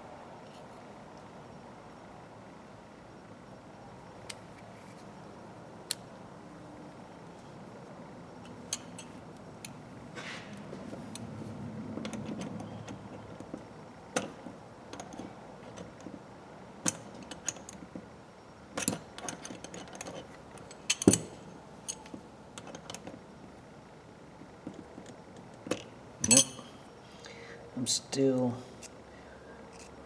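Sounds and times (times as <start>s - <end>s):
sharp metal clack: 26.2s - 26.7s.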